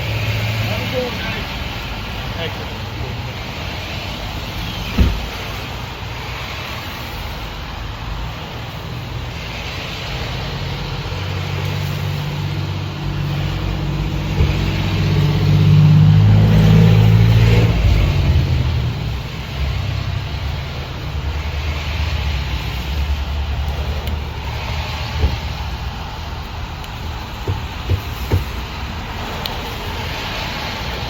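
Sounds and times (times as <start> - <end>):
vehicle engine running: 7.0 - 31.0.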